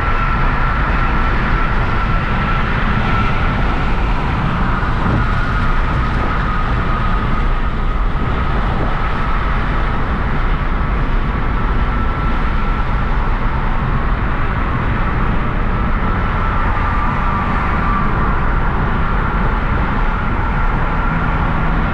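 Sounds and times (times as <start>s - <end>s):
car engine and road noise: 0.0s - 21.9s.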